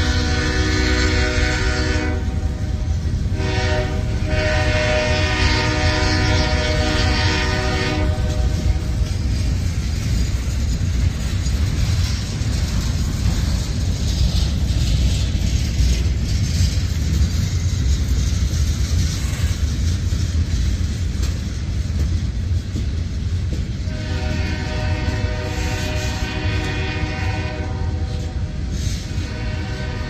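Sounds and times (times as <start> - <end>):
locomotive air horn: 0.0 - 9.0, 23.8 - 30.0
train wheels rumbling on rails: 0.0 - 30.0.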